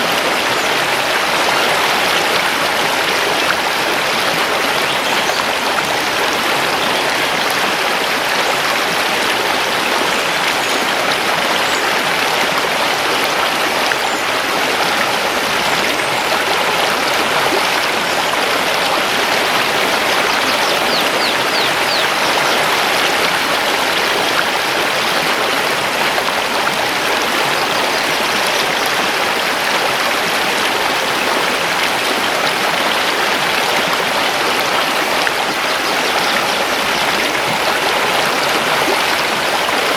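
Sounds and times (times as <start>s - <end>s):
mountain river rushing over stones: 0.0s - 39.9s
faint high bird chirps: 20.4s - 22.4s.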